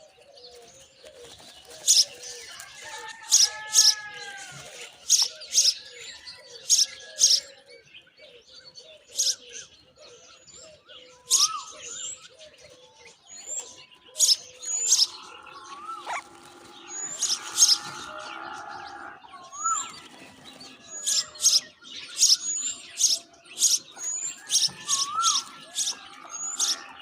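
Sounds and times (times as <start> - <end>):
myna birds screeching: 1.2 - 7.5, 11.2 - 12.4, 13.3 - 27.0
bird whistles and chirps: 11.2 - 12.3, 13.3 - 27.0.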